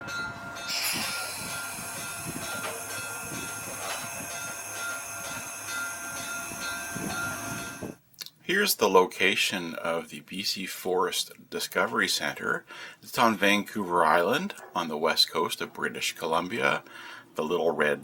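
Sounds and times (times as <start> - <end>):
thin high whine: 0.0 - 8.0
train rumbling and rattling on rails: 0.0 - 8.0
rail clicks: 0.1 - 8.0.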